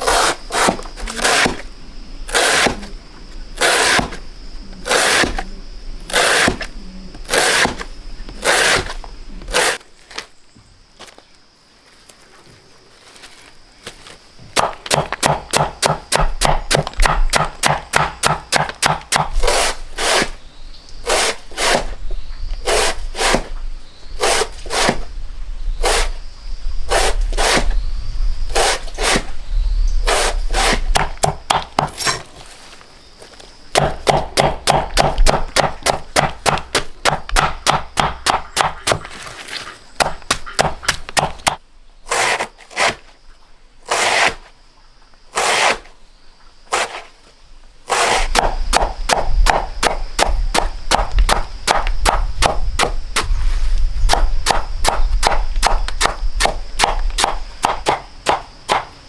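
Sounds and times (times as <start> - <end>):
rapid chopping strokes: 0.0 - 1.6, 2.3 - 2.8, 6.1 - 6.7, 8.4 - 9.8, 14.6 - 20.4, 21.0 - 21.9, 24.2 - 25.0, 26.9 - 27.7, 28.5 - 29.3, 30.1 - 32.2, 43.8 - 44.4, 45.3 - 45.9, 46.7 - 47.1, 47.9 - 53.3.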